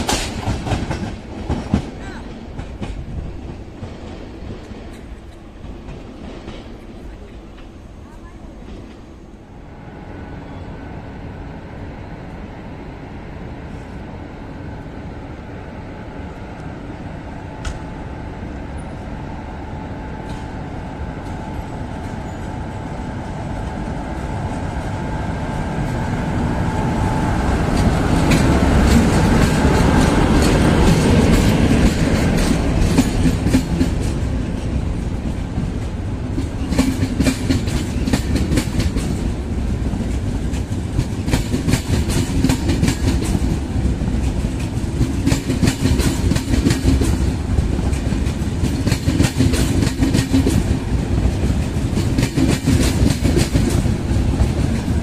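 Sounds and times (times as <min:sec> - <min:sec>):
passenger train passing: 0:00.0 - 0:55.0
wheels clicking over rail joints: 0:27.6 - 0:55.0.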